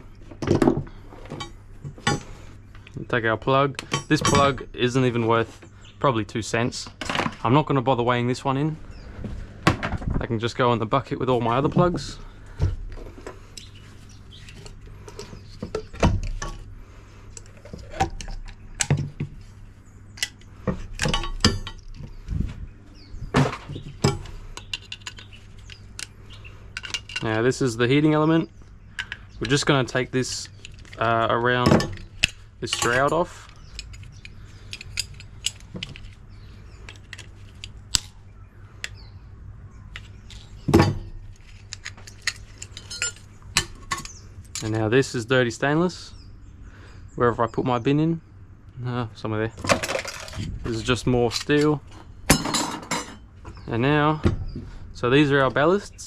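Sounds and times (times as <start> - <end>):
metal and plastic parts clattering: 23.3 - 26.1, 26.8 - 27.4, 29.0 - 36.2, 40.0 - 44.8, 49.6 - 53.2.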